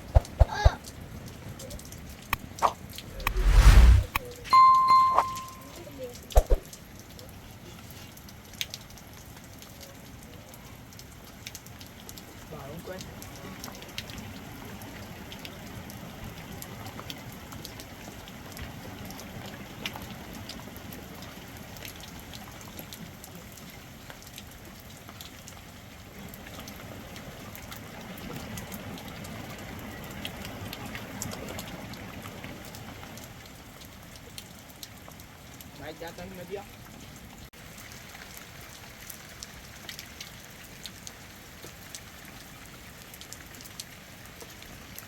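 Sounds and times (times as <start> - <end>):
rain falling: 0.0 - 3.2, 5.3 - 45.0
raindrops ticking on a surface: 0.5 - 3.1, 5.6 - 45.0.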